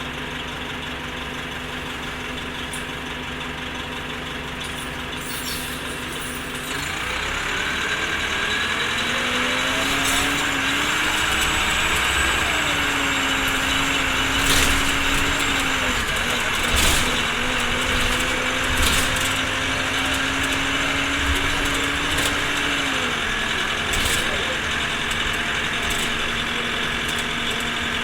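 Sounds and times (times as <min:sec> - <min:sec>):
bus diesel engine: 0:00.0 - 0:28.0.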